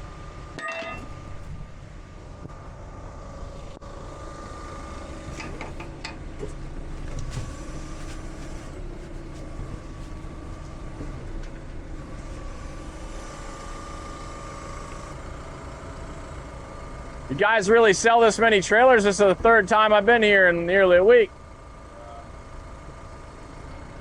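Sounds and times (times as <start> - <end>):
vehicle engine running: 0.0 - 24.0
light clinks and knocks: 0.6 - 1.4.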